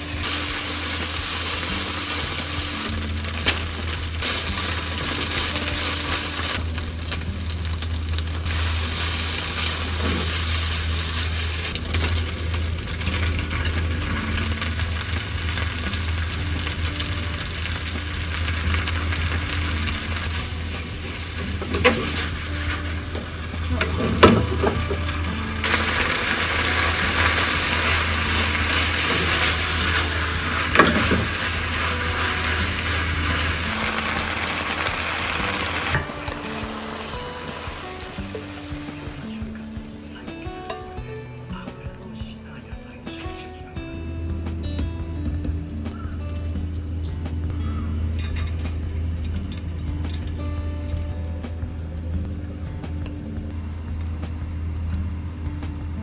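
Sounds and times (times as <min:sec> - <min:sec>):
hot oil sizzling in a pan: 0:00.0 - 0:41.1
low steady hum: 0:00.0 - 0:56.0.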